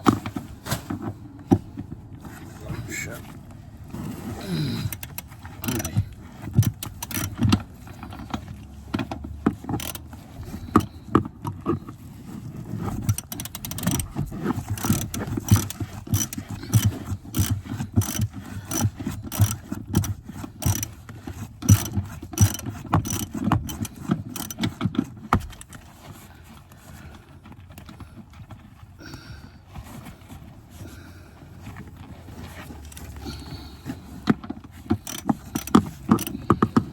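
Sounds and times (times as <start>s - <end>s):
ratchet wrench clicking: 4.8s - 8.3s, 9.7s - 10.9s, 13.0s - 24.8s, 35.0s - 36.9s.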